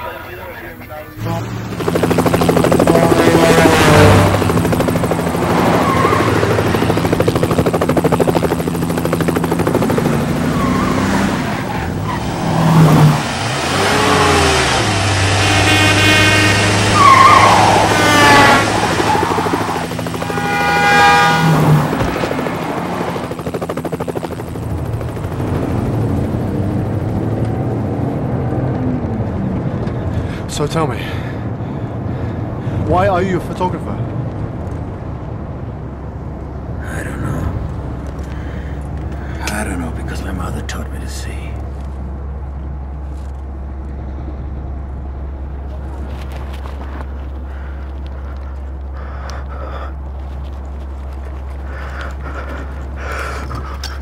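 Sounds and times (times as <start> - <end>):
car engine revving through gears: 10.0 - 19.3.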